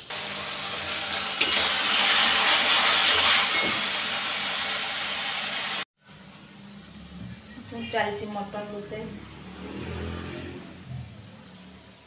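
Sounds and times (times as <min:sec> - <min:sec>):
masala sizzling in hot oil: 0:00.0 - 0:07.0.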